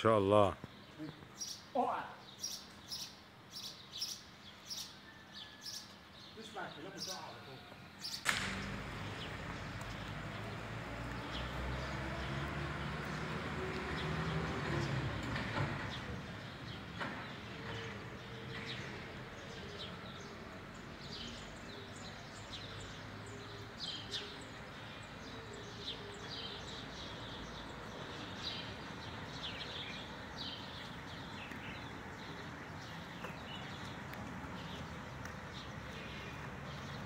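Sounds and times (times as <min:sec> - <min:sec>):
outdoor background noise: 0:00.0 - 0:37.0
small birds chirping: 0:00.1 - 0:37.0.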